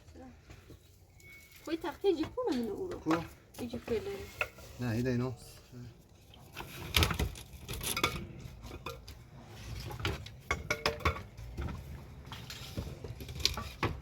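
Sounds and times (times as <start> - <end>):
hard objects knocking and clinking: 10.0 - 14.0.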